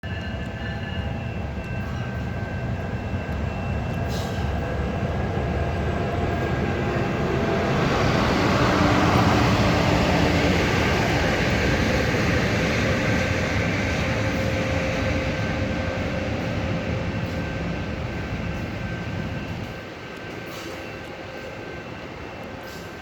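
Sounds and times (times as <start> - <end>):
diesel train rumbling: 0.0 - 23.0.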